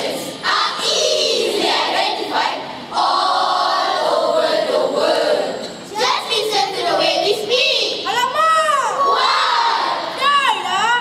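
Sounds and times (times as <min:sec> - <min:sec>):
children singing in unison: 0:00.0 - 0:08.0.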